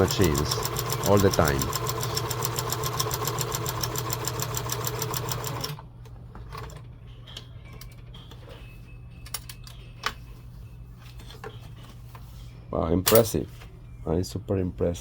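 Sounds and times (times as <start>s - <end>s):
sewing machine stitching: 0.0s - 5.8s.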